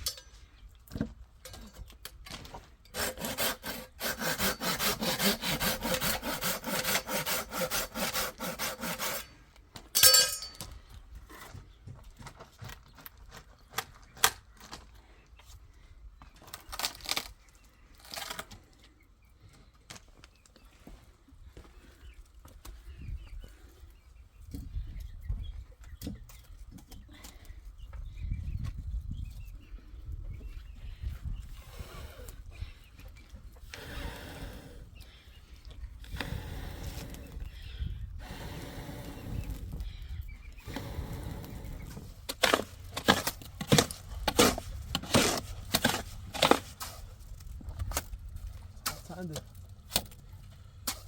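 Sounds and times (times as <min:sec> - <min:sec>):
small birds chirping: 0:18.6 - 0:43.0.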